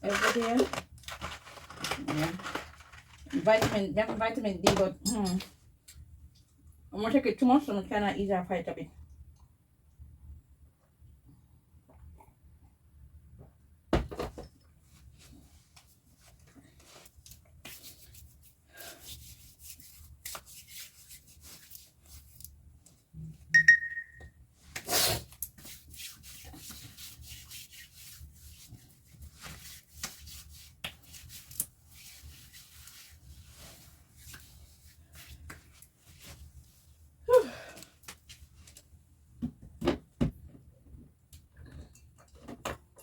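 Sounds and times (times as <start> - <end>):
rubbing and handling sounds: 0.0 - 5.6, 14.8 - 23.1, 24.6 - 37.2
short high ring: 23.6 - 24.3.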